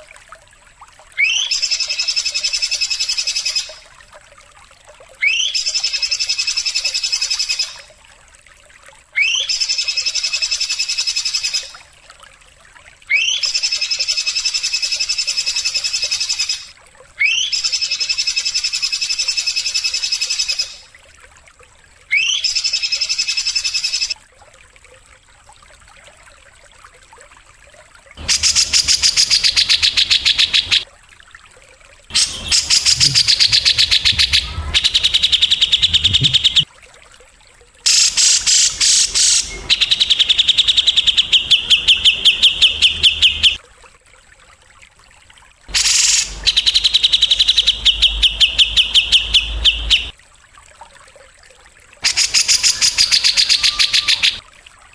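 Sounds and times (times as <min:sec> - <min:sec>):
harsh pulsed bird trill: 0:28.2 - 0:30.8, 0:32.1 - 0:36.7, 0:37.9 - 0:43.6, 0:45.7 - 0:50.1
buzzy bird trill: 0:32.1 - 0:36.6, 0:37.9 - 0:43.6, 0:45.7 - 0:50.1.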